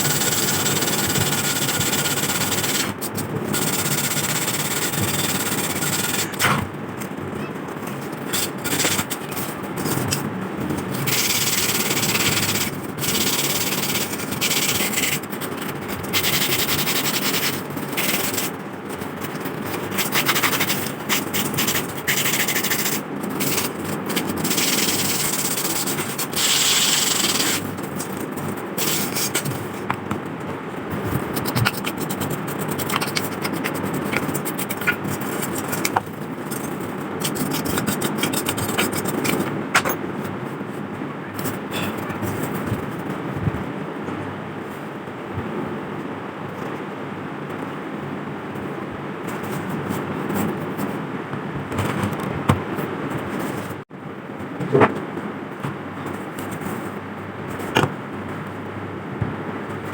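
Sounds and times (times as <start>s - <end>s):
sandpaper rubbing on rusty metal: 0.0s - 6.4s, 8.3s - 10.2s, 11.0s - 18.6s, 19.2s - 29.8s, 31.3s - 36.0s, 37.2s - 39.4s.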